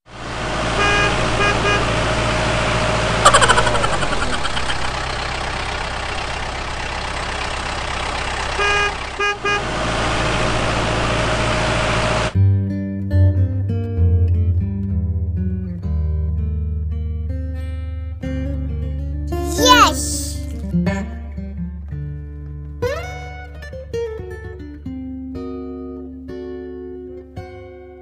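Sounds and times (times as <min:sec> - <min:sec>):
vehicle engine running: 0:00.1 - 0:12.4
vehicle horn toots: 0:00.8 - 0:02.1, 0:08.6 - 0:09.8.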